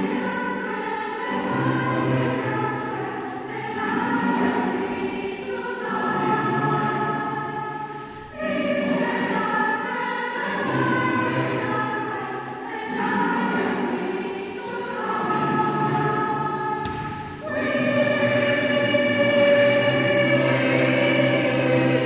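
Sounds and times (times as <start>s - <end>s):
choir singing held chords: 0.0s - 22.0s
singers breathing: 7.8s - 8.3s
brief thump: 16.8s - 17.4s.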